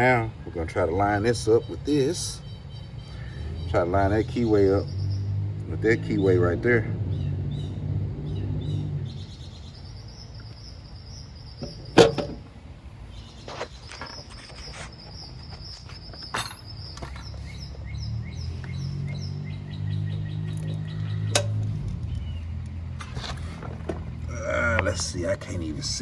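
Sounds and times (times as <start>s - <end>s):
birds chirping: 0.0s - 26.0s
metal knocks and clinks: 11.6s - 12.5s, 13.9s - 17.4s, 22.9s - 24.2s.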